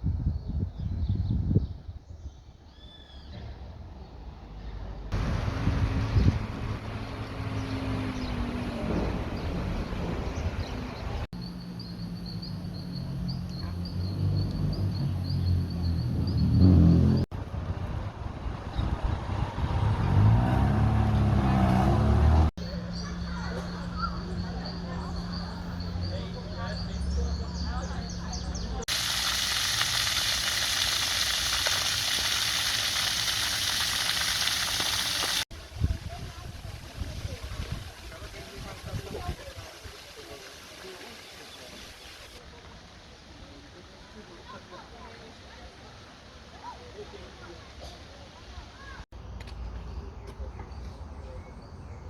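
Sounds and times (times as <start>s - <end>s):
steady hiss: 28.9s - 35.4s.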